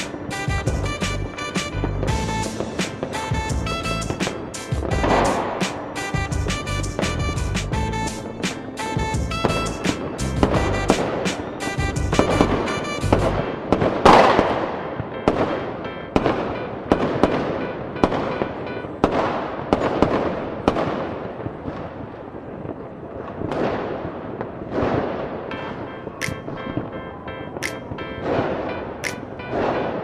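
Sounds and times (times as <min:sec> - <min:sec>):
music: 0:00.0 - 0:19.2, 0:25.5 - 0:30.0
fireworks bangs: 0:00.0 - 0:26.9.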